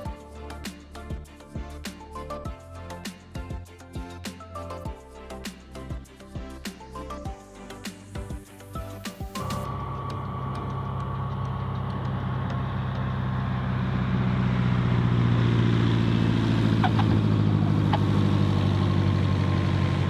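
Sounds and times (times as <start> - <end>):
propeller airplane engine drone: 9.6 - 20.0.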